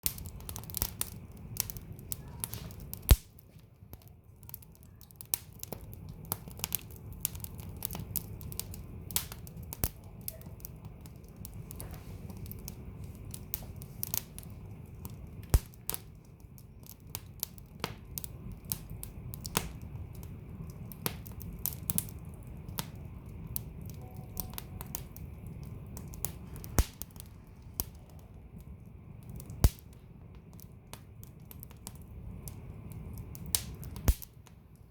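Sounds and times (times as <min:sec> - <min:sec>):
fire crackling in fireplace: 0:00.0 - 0:34.9
low rumble of flames: 0:00.0 - 0:34.9
loud pops from logs: 0:03.0 - 0:03.3, 0:15.6 - 0:15.8, 0:26.7 - 0:27.0, 0:33.6 - 0:34.4.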